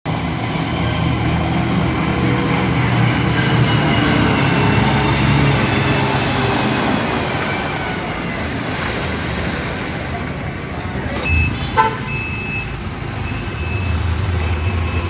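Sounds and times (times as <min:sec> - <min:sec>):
diesel truck engine droning: 0:00.0 - 0:15.0.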